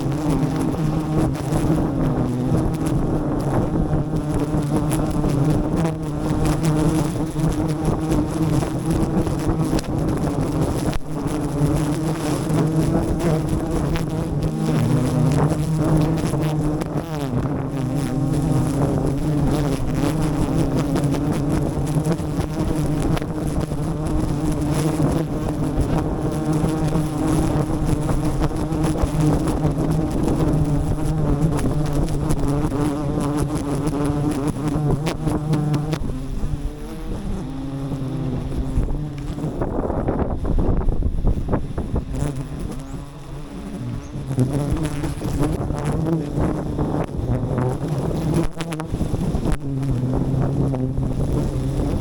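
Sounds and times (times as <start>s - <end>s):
bees buzzing: 0.0s - 52.0s.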